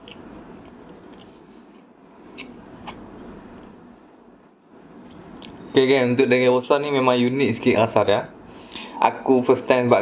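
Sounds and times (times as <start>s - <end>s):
person chewing with wet mouth clicks: 0.0s - 3.0s
low room hiss: 0.0s - 10.0s.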